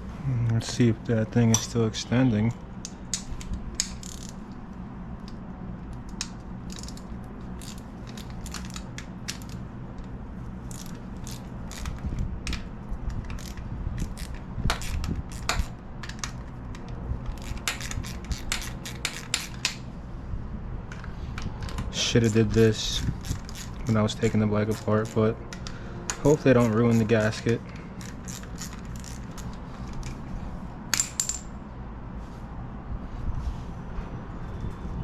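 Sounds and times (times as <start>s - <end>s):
steady low hum: 0.0s - 35.0s
metallic clicking and ratcheting: 3.1s - 4.4s.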